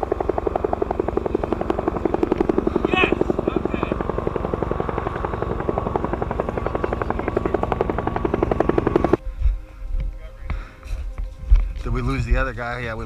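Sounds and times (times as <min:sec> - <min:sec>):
gearbox motor whine: 0:00.0 - 0:09.2.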